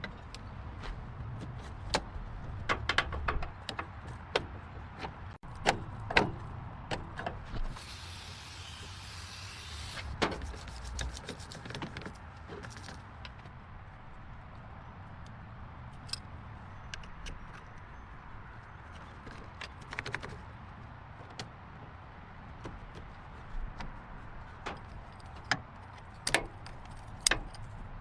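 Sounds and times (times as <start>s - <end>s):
metal clicks and knocks: 1.9s - 7.5s
hiss: 7.8s - 10.2s.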